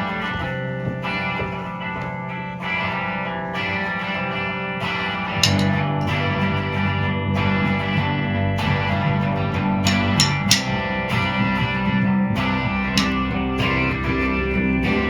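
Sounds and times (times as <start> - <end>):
drums: 0.0 - 3.0, 5.3 - 15.0
bass guitar: 0.0 - 15.0
guitar chords: 0.0 - 15.0
sharp cymbal hits: 5.4 - 5.8, 9.9 - 10.8.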